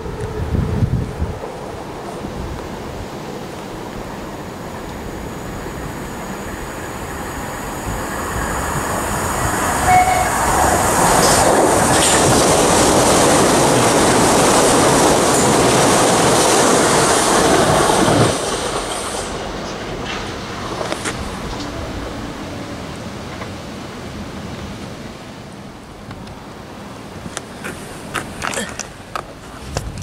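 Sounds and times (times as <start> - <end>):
electric train passing at speed: 0.0 - 30.0
brief high tone: 9.8 - 10.5.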